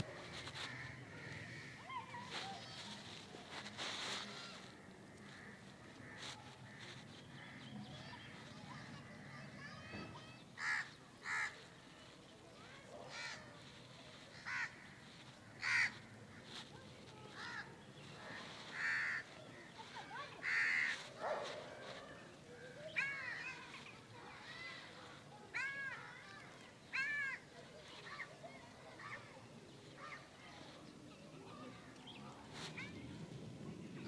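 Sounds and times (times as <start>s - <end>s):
birds harsh calls: 10.6s - 11.6s, 13.0s - 22.2s.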